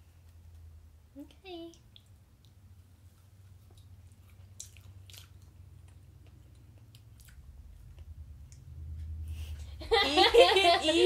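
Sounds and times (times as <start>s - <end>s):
soft mouth clicks chewing: 1.7s - 9.2s.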